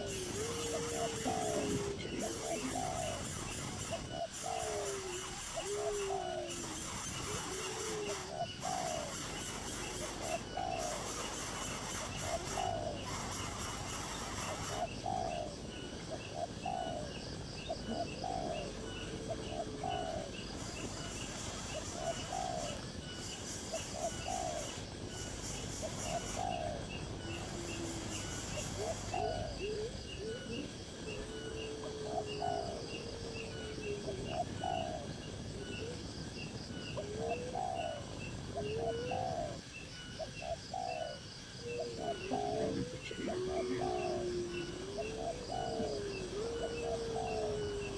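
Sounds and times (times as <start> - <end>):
birds calling short notes: 0.0 - 16.6, 17.7 - 35.9
long gliding bird calls: 0.0 - 47.9.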